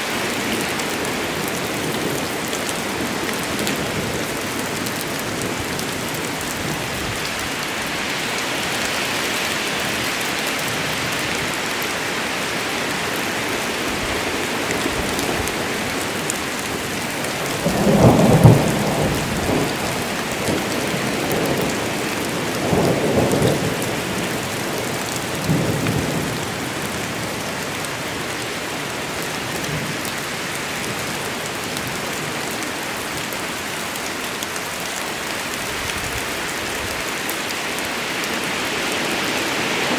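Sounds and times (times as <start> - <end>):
heavy rain falling: 0.0 - 39.9
thunder rumbling: 13.8 - 27.6.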